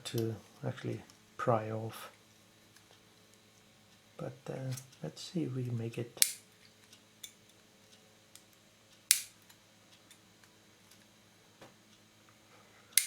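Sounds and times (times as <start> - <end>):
low steady hum: 0.0 - 13.0
metal pick clicking on plastic: 6.2 - 6.4.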